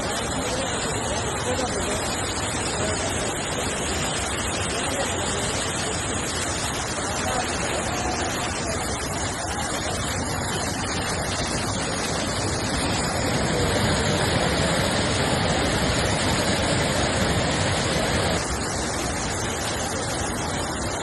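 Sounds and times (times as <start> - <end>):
torrential rain pouring: 0.0 - 21.0.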